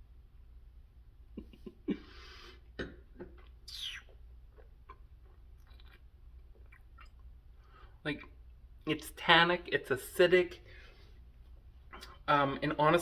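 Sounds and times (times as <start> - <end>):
hissing slurp: 3.7 - 4.2.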